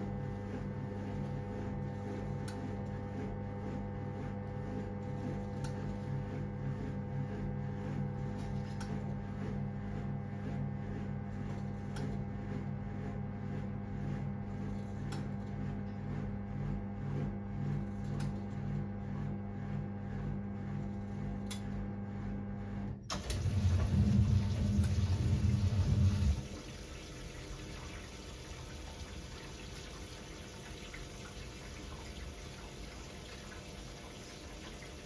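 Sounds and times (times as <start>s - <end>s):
washing machine motor hum: 0.0s - 35.0s
water rushing and splashing: 23.2s - 34.8s.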